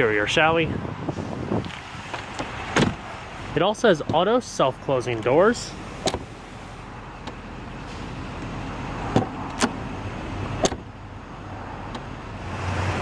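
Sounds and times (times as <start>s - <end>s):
car door clicks and knocks: 2.1s - 3.0s, 6.0s - 6.3s, 9.1s - 9.8s, 10.6s - 10.9s.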